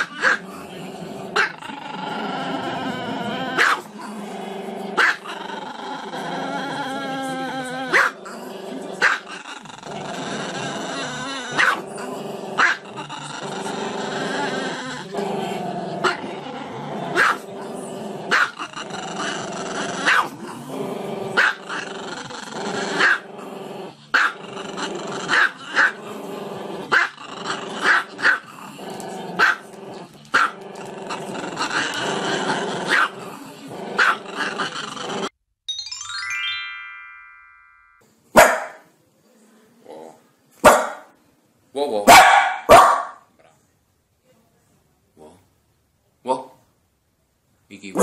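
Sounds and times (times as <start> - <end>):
dog growling: 0.0 - 35.4, 39.8 - 40.3
small dog barking: 3.6 - 3.9, 5.0 - 5.3, 7.9 - 8.2, 11.6 - 11.8, 17.2 - 17.4, 18.3 - 18.6, 20.0 - 20.3, 29.4 - 29.6, 38.4 - 38.9, 40.6 - 41.1, 42.1 - 43.3.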